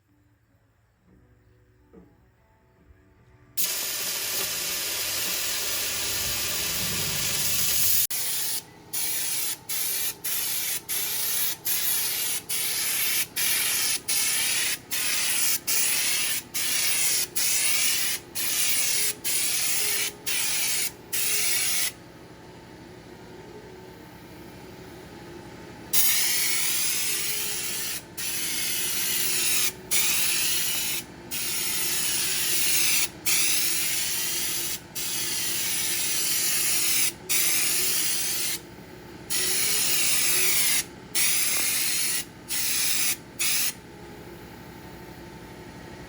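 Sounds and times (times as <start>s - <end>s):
spray gun trigger bursts: 3.6s - 21.9s
spray gun hissing: 3.6s - 22.0s.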